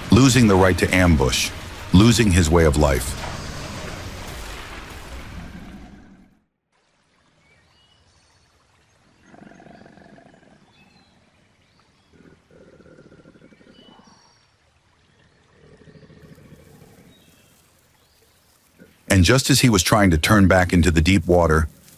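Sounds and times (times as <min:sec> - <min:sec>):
river water: 0:00.0 - 0:06.0, 0:06.7 - 0:21.9
low rough animal growls: 0:09.2 - 0:11.2, 0:12.0 - 0:14.3, 0:15.3 - 0:17.4.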